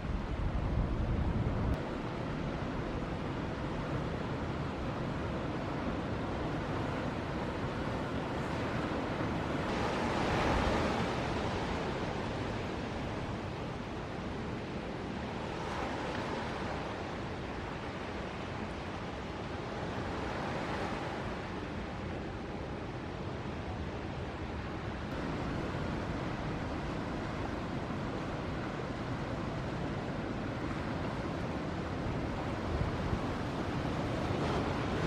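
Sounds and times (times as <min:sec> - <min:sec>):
ocean surf breaking: 0:06.6 - 0:22.5, 0:24.9 - 0:35.0.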